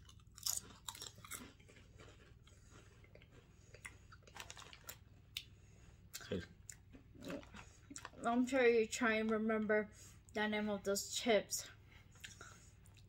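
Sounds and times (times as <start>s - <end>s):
potato chips crunching: 0.0s - 5.4s.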